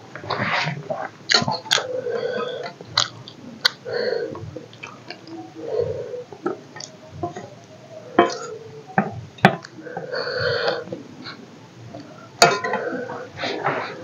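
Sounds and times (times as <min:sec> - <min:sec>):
wet chewing: 0:01.0 - 0:05.4, 0:06.4 - 0:07.5
lip smacks and clicks: 0:02.6 - 0:03.8.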